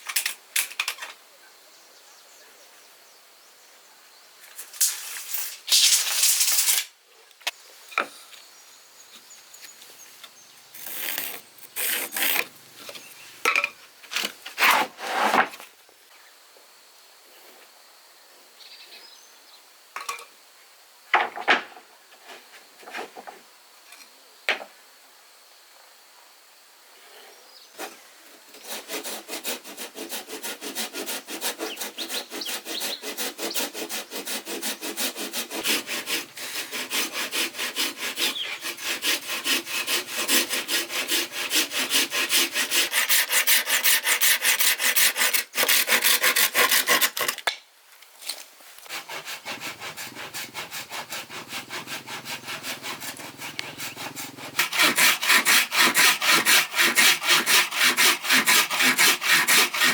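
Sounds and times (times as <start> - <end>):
hand saw cutting wood: 10.8 - 12.5, 14.6 - 15.5, 27.8 - 47.5, 48.8 - 59.9.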